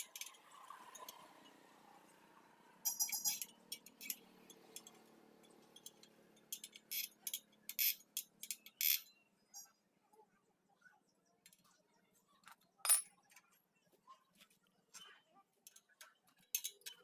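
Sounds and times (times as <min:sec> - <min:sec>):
metal parts and tools clinking: 0:02.8 - 0:09.7, 0:12.4 - 0:13.6, 0:15.0 - 0:17.0.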